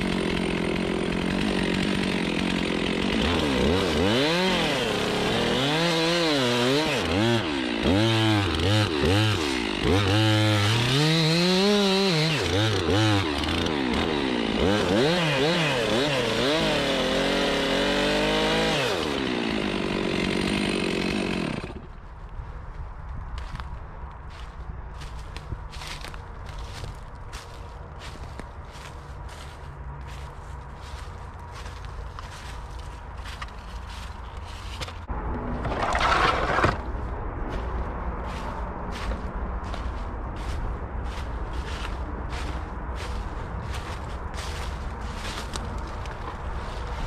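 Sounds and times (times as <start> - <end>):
chainsaw revving: 0.0 - 21.9.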